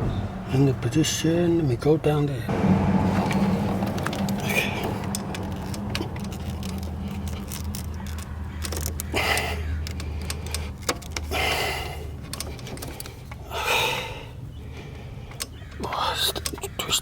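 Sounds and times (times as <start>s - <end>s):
clicks and rattles of belt work: 3.2s - 13.8s.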